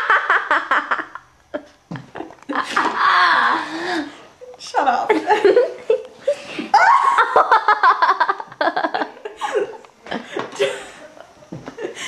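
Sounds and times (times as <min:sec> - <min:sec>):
person laughing and giggling: 0:00.0 - 0:04.1, 0:06.7 - 0:12.0.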